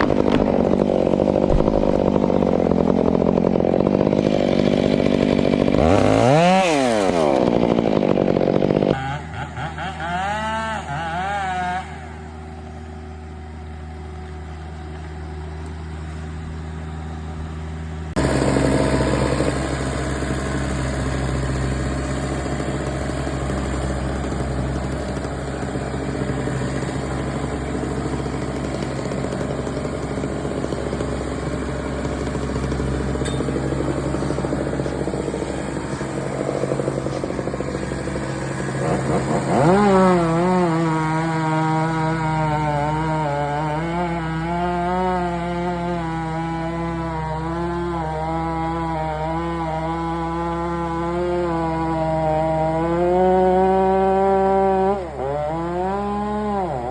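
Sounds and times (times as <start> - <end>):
engine revving up: 0.0 - 56.9
small engine running: 0.0 - 56.9.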